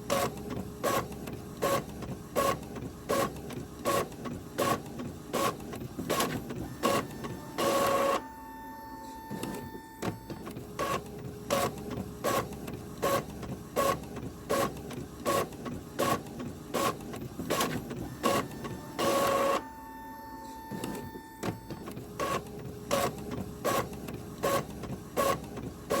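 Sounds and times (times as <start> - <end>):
printer mechanical clacks: 0.0 - 8.2, 9.2 - 19.7, 20.6 - 26.0
printer whirring burst: 5.4 - 26.0.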